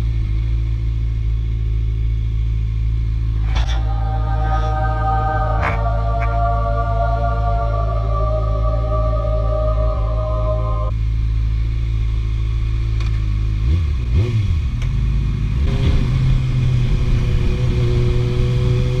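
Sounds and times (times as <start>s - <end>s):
sport bike engine revving: 13.6s - 19.0s.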